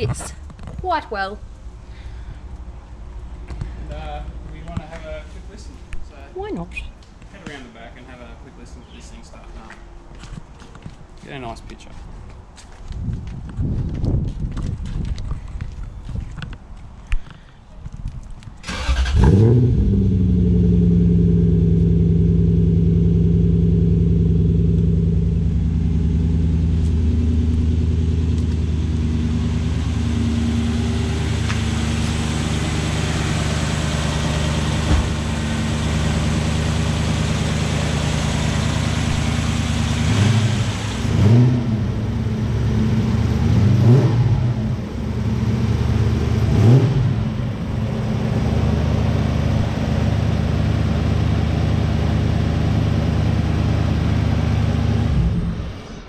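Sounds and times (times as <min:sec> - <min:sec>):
car engine starting: 0:18.6 - 0:56.0
car engine idling: 0:18.7 - 0:56.0
engine revving: 0:18.7 - 0:56.0.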